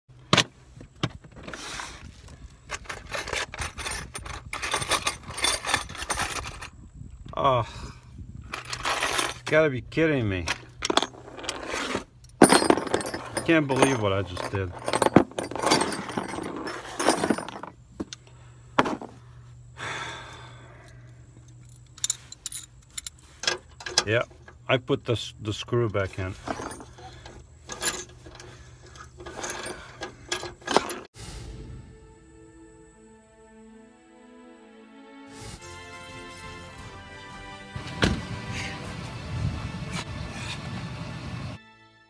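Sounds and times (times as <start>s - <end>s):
metal hardware scraping and rattling: 2.6s - 6.8s, 8.4s - 18.2s, 18.8s - 19.2s, 21.4s - 31.1s.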